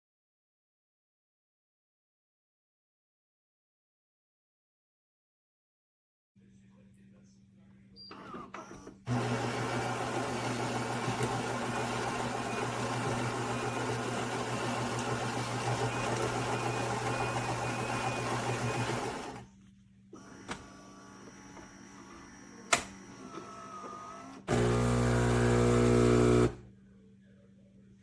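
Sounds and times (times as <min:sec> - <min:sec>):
espresso machine buzzing: 0:09.1 - 0:19.4, 0:20.2 - 0:26.6
click: 0:22.7 - 0:23.0.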